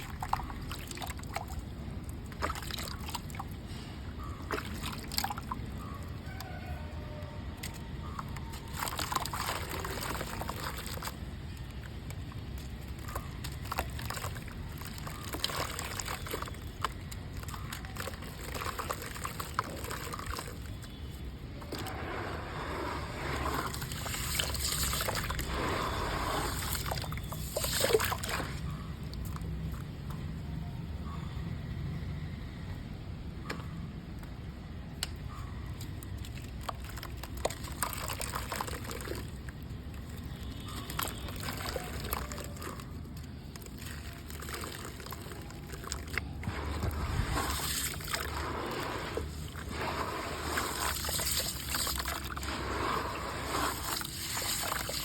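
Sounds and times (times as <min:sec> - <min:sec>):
mud crumbling into water: 0:00.0 - 0:03.6, 0:04.2 - 0:06.4, 0:07.5 - 0:30.0, 0:35.0 - 0:55.0
water sloshing and trickling: 0:00.0 - 0:32.2, 0:32.9 - 0:55.0.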